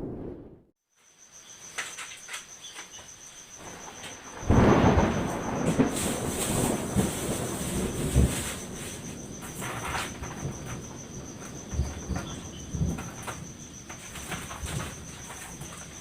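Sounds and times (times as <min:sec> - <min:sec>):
thunder rumbling: 0:00.0 - 0:00.7, 0:03.6 - 0:15.7
high insect trill: 0:00.8 - 0:16.0.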